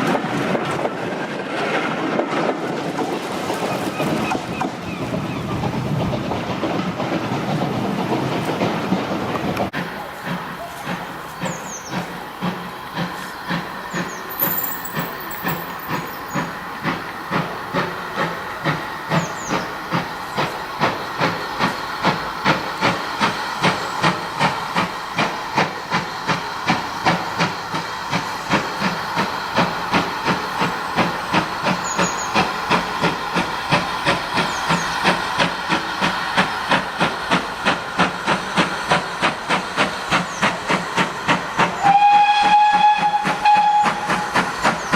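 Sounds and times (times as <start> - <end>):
steam hissing: 5.5 - 44.9
steam engine exhaust chuffs: 9.7 - 44.9.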